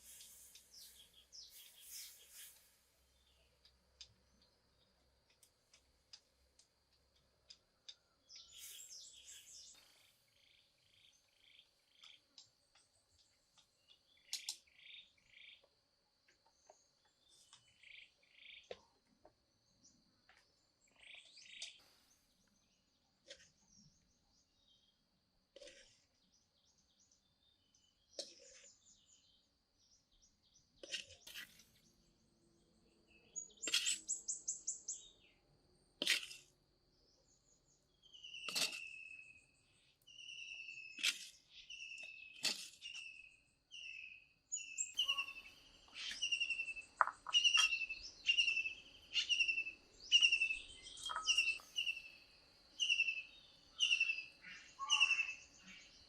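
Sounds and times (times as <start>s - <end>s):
bird chirps: 0.0s - 6.3s, 7.5s - 15.7s, 16.4s - 19.0s, 19.8s - 25.0s, 25.6s - 35.4s, 36.9s - 56.0s
high bird trill: 42.8s - 55.9s.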